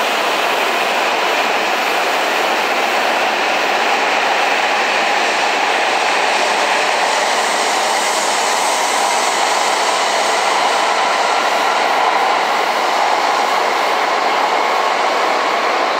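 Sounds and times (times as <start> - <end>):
train wheels rolling on rail: 0.0 - 15.9.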